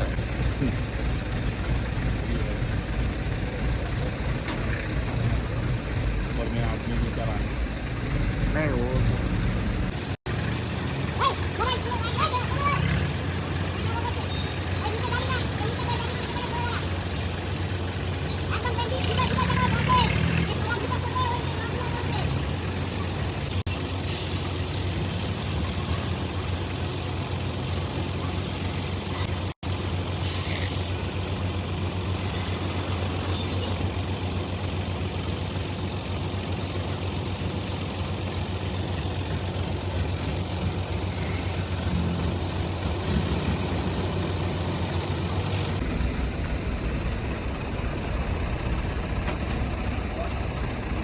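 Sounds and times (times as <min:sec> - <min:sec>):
truck diesel engine running: 0:00.0 - 0:51.0
air brake hiss: 0:24.0 - 0:24.9, 0:30.2 - 0:31.0.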